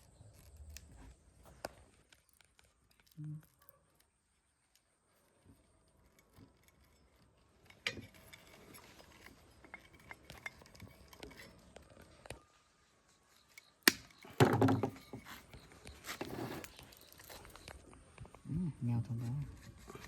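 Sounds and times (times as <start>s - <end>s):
metal tools clinking: 5.9s - 11.8s.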